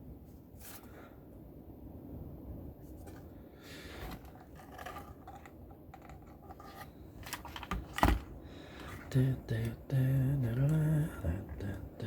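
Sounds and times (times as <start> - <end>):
clicking and scratching of components: 4.1 - 7.9.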